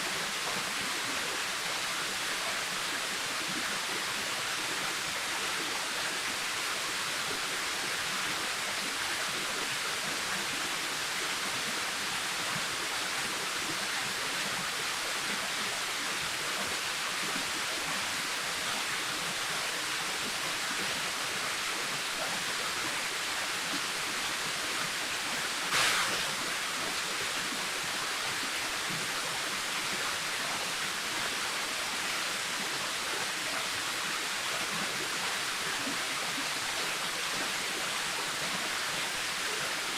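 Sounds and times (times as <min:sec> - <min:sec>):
waterfall rushing: 0:25.2 - 0:30.4.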